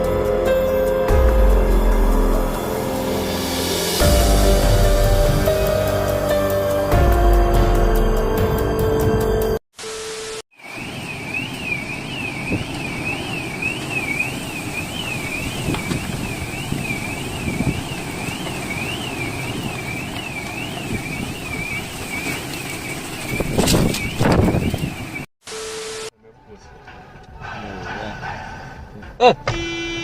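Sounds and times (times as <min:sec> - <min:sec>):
traffic noise: 0:10.6 - 0:25.3, 0:26.2 - 0:30.0.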